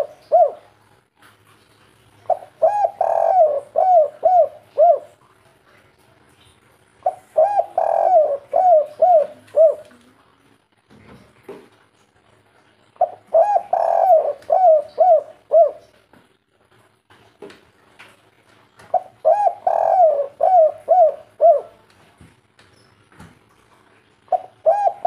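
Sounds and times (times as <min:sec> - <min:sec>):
dove cooing: 0:00.0 - 0:00.8, 0:02.3 - 0:05.2, 0:07.0 - 0:10.0, 0:13.0 - 0:16.0, 0:18.9 - 0:21.9, 0:24.3 - 0:25.0.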